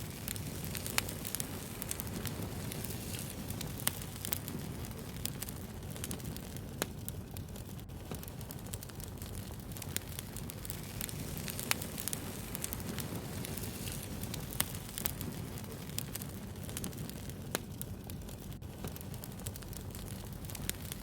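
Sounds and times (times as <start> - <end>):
fire crackling and popping: 0.0 - 21.0
wood fire rumbling: 0.0 - 21.0.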